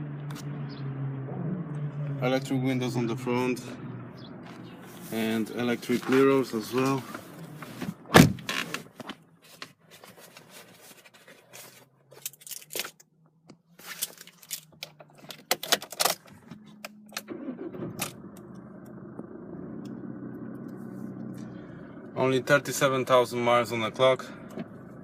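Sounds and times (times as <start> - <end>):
diesel engine starting and idling: 16.2 - 25.0.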